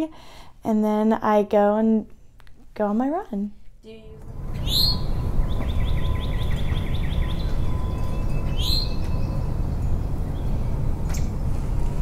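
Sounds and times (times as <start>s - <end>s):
steady low rumble: 3.9s - 12.0s
sharp rising bird chirp: 4.3s - 11.4s
bird trill: 4.4s - 11.3s.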